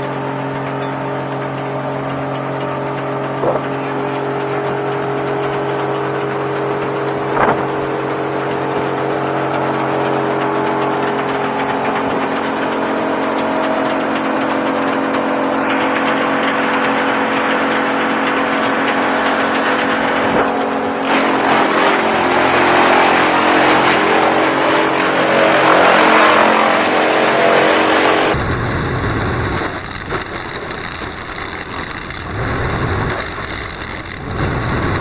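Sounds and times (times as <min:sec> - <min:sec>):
wood chipper engine drone: 0:00.0 - 0:35.0
sharp cracks: 0:28.1 - 0:35.0
wood being chipped: 0:28.3 - 0:35.0.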